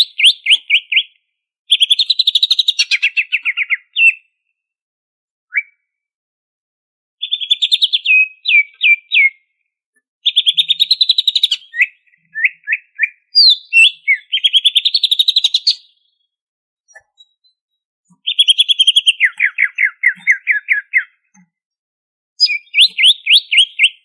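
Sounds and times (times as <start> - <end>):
bird singing chattering trills: 10.3 - 15.9, 16.9 - 21.4, 22.4 - 24.0.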